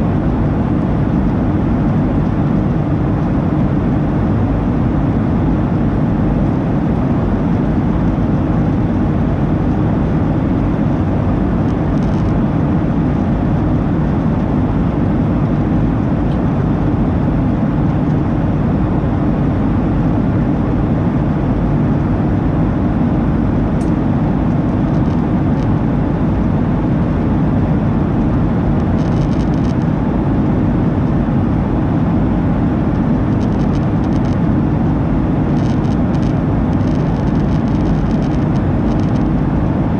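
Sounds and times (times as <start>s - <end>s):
jet engine cabin noise: 0.0s - 39.9s
faint small ticks: 12.0s - 12.4s, 35.6s - 39.3s.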